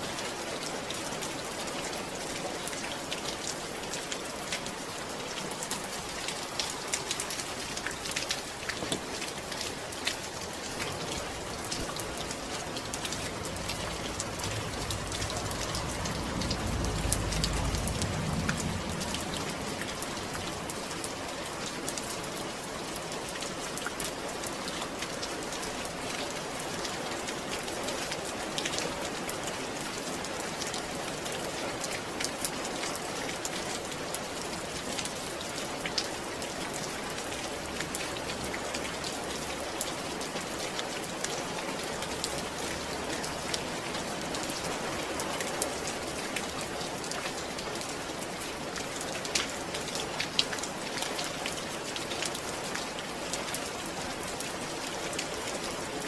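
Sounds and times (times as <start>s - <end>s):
raindrops ticking on surface: 0.0s - 56.0s
low rumble: 11.4s - 20.9s.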